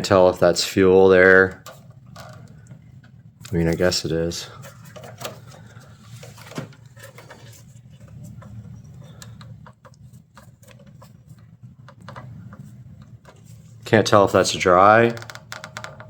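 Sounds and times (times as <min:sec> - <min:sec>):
low steady hum: 0:00.0 - 0:16.0
faint clicks and taps: 0:06.5 - 0:13.6.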